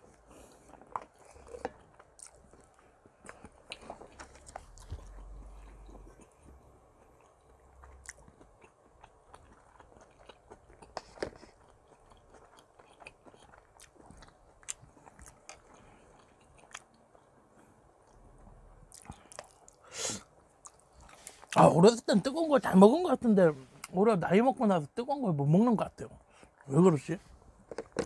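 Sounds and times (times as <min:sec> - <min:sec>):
faint chewing: 0:00.0 - 0:21.7.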